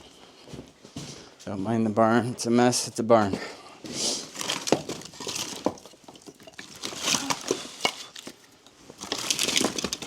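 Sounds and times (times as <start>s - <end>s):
rustling: 3.8s - 10.0s.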